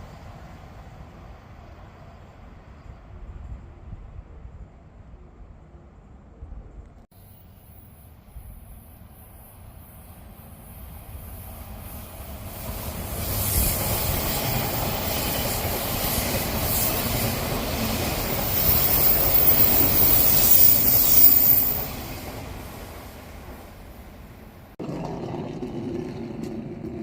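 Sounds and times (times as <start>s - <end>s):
electric train passing: 7.2s - 27.0s
high-pitched squeal: 16.7s - 22.2s.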